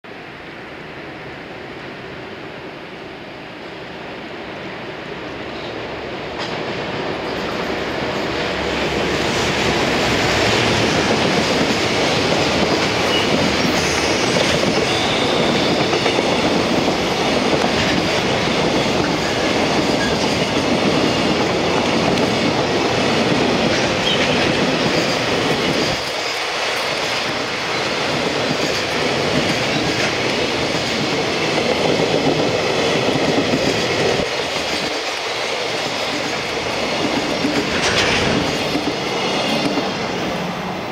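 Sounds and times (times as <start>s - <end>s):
electric locomotive passing: 0.1s - 40.9s
train wheels clattering over rail joints: 33.3s - 40.0s.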